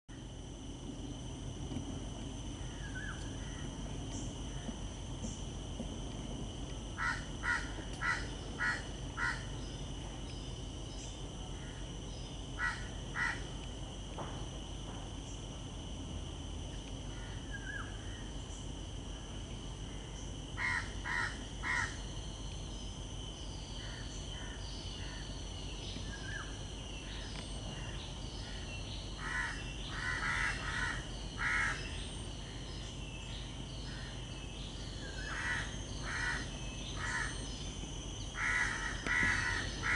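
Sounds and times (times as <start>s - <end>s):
high-pitched insect drone: 0.1s - 39.9s
bird calling: 2.6s - 5.4s, 7.0s - 13.5s, 20.6s - 22.1s, 26.0s - 39.9s.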